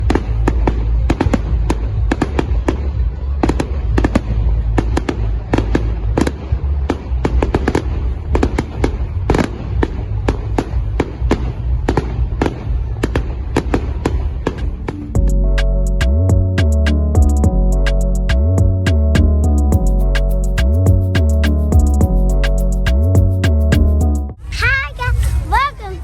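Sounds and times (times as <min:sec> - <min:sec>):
fireworks bangs and crackles: 0:00.0 - 0:14.9
low rumble: 0:00.0 - 0:24.6.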